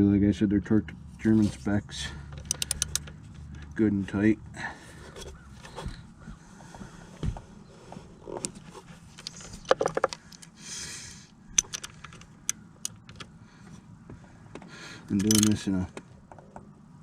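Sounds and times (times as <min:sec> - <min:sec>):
ratchet wrench clicking: 0:02.4 - 0:03.1, 0:11.6 - 0:13.2, 0:15.1 - 0:15.6.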